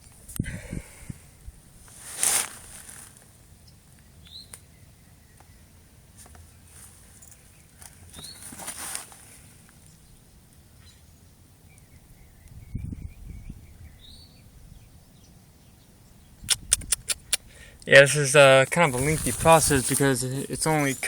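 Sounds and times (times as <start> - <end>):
brief rustle: 6.2 - 9.5.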